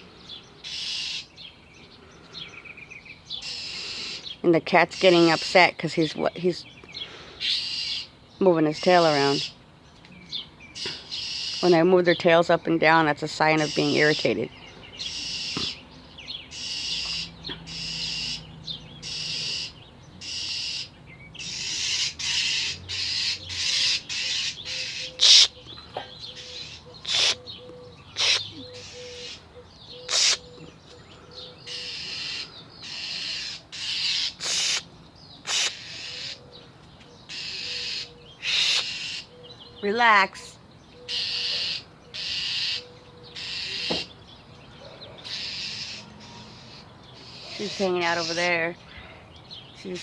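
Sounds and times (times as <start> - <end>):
bird rasping scolding calls: 0.6 - 1.3, 3.4 - 5.7, 7.4 - 8.1, 10.8 - 11.8, 13.4 - 15.8, 16.5 - 30.6, 31.6 - 36.4, 37.3 - 39.3, 41.1 - 44.2, 45.2 - 48.7.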